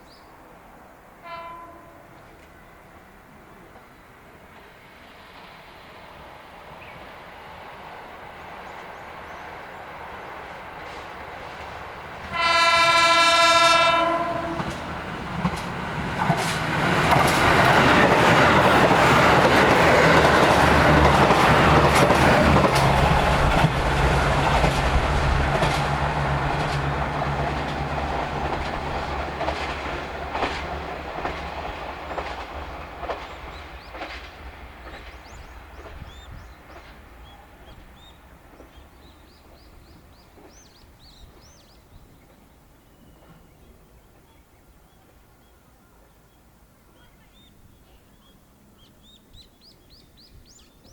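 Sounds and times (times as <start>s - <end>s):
train horn blast: 1.2s - 2.8s, 12.3s - 14.8s
wheels clicking over rail joints: 14.2s - 37.1s.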